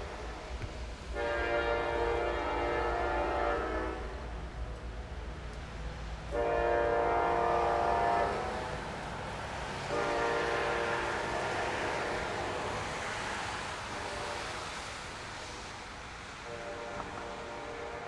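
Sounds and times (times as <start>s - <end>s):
locomotive air horn blasts: 0.0s - 4.3s, 6.3s - 8.7s, 9.8s - 12.8s, 13.8s - 14.8s, 16.4s - 18.0s
passing train noise: 0.0s - 18.0s.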